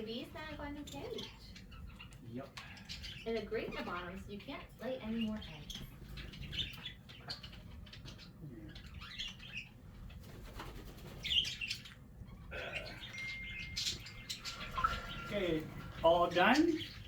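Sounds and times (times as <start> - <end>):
cockatiels chirping: 0.0 - 17.0
wing flapping: 10.0 - 11.8.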